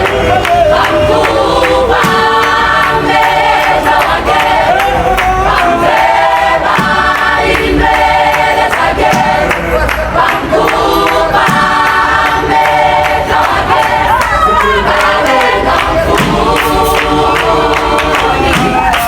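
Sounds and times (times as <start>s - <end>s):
choir singing: 0.0s - 19.0s.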